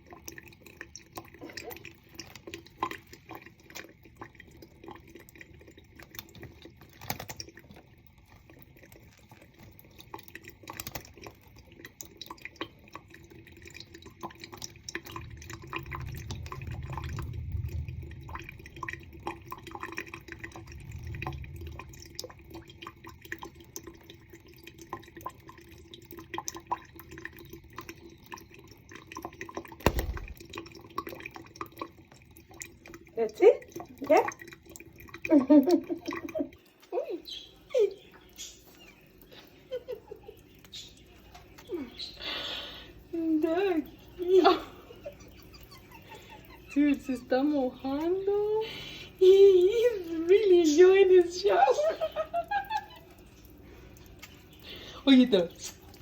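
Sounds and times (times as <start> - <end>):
tap water running: 0.0 - 56.0
water drips and splashes: 0.0 - 56.0
low thump: 29.8 - 30.4.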